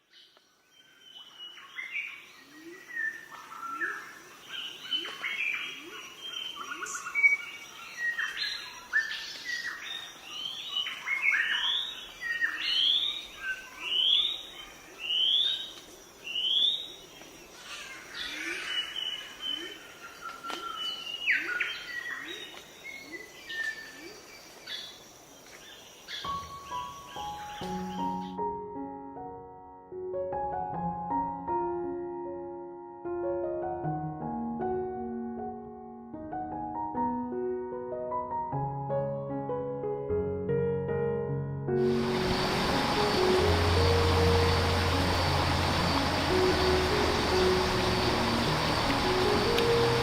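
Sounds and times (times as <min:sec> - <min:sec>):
wild birds calling and singing: 0:00.2 - 0:28.4, 0:41.8 - 0:50.0
steady high-pitched tone: 0:41.9 - 0:50.0.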